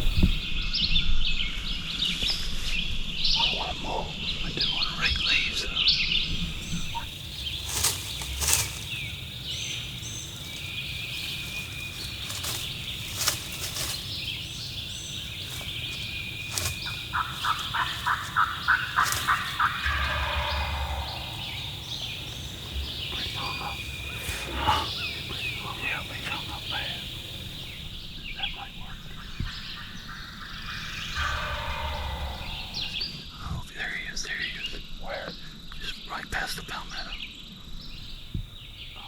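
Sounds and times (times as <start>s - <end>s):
songbirds chirping: 0.0s - 39.0s
turkey gobbling: 6.4s - 27.9s, 28.9s - 33.0s
turkey yelps: 14.6s - 27.6s.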